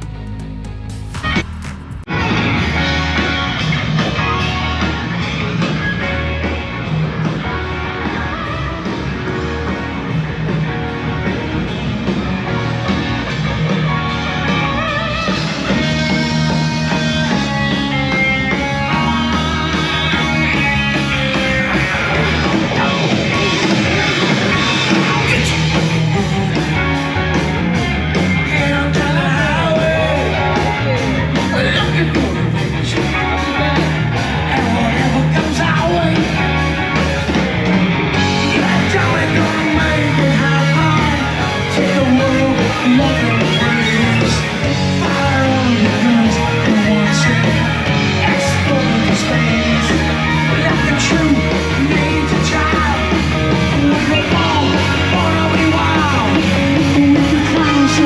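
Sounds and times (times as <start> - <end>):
rock music with electric guitar: 0.0 - 58.0
person singing: 38.2 - 58.0.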